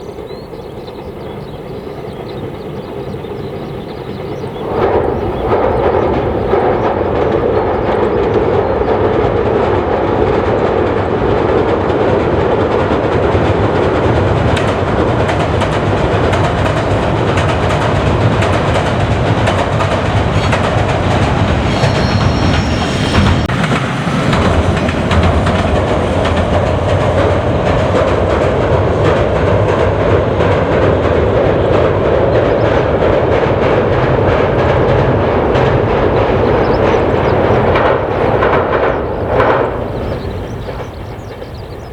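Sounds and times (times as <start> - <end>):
train running on track: 0.0 - 41.9
wheels clickety-clack over rails: 0.0 - 41.9
high-pitched whine: 20.4 - 27.1.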